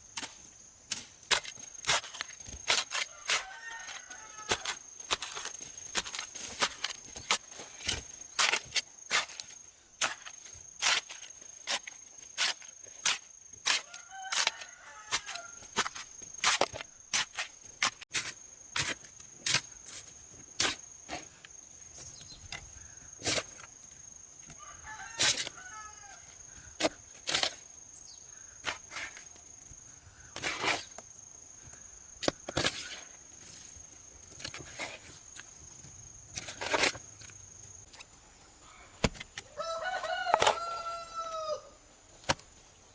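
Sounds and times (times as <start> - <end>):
chicken calling faintly: 38.6 - 41.8.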